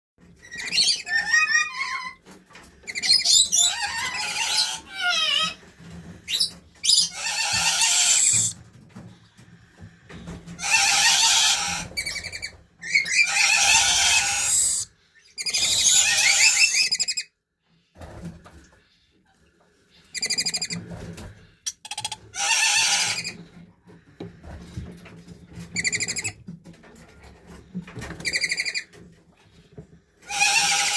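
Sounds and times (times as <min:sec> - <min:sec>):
parrot screeching: 0:00.4 - 0:02.2, 0:02.9 - 0:05.6, 0:06.3 - 0:08.6, 0:10.6 - 0:17.3, 0:21.9 - 0:23.4, 0:30.3 - 0:30.9.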